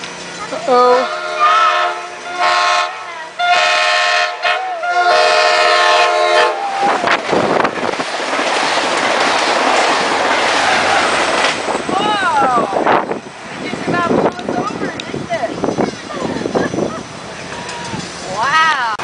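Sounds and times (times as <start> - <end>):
train roaring past: 0.0 - 19.0
train horn blasts: 0.8 - 6.7.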